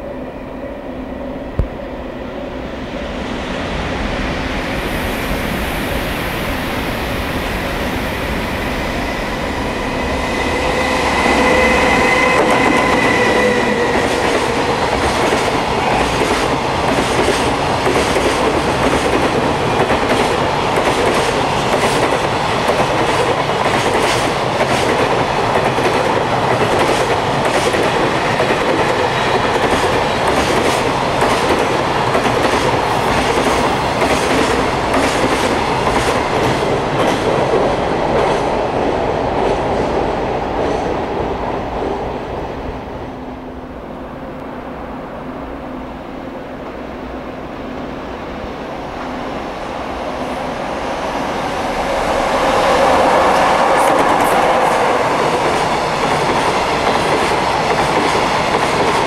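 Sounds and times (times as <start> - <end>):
multi-pitched locomotive tone: 0.0 - 17.0, 42.6 - 57.1
train wheels clacking over rail joints: 11.5 - 38.5, 53.4 - 59.0.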